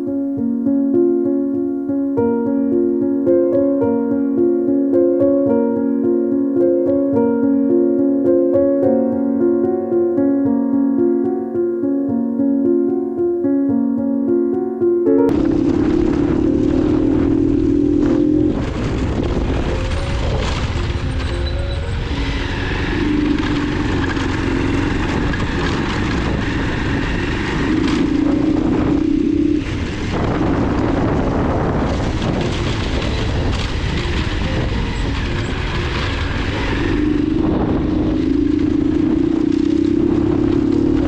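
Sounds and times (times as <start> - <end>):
background music: 0.0 - 41.0
motorcycle engine rumble: 15.3 - 41.0.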